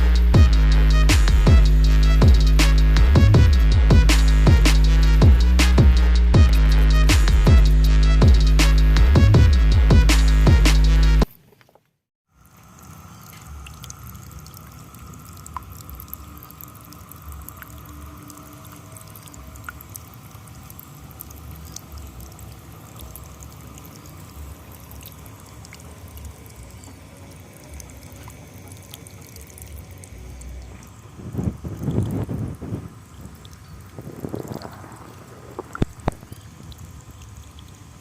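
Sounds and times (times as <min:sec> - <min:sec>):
small waterfall trickling and splashing: 0:11.7 - 0:38.0.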